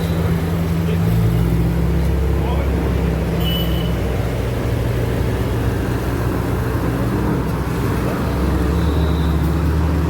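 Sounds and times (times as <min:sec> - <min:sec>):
car engines idling: 0:00.0 - 0:10.0.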